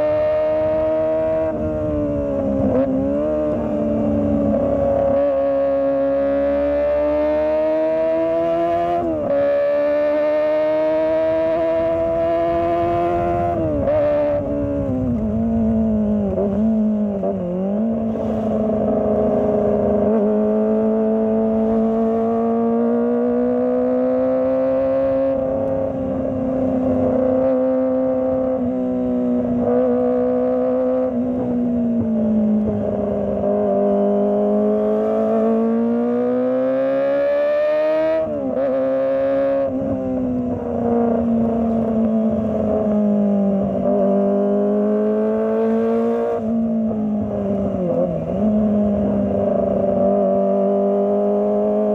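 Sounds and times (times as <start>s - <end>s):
motorcycle engine running: 10.8s - 17.6s.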